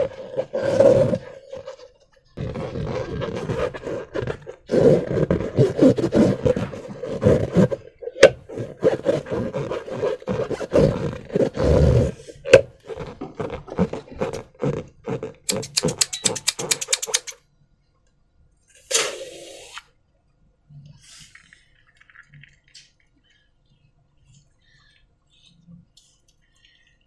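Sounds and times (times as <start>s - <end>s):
crackling clicks: 15.5s - 17.4s.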